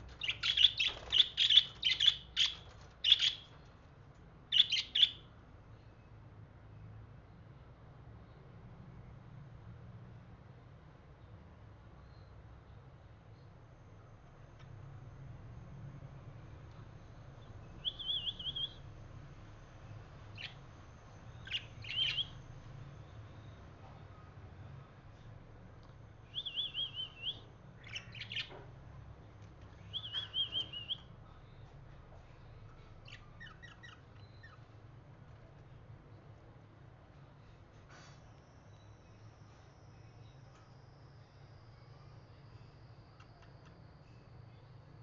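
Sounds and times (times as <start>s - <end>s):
faint low hum: 0.0s - 45.0s
budgerigar chirping: 0.2s - 3.4s, 4.5s - 5.2s, 17.8s - 18.8s, 21.4s - 22.4s, 26.3s - 28.5s, 29.9s - 31.0s, 33.1s - 34.6s.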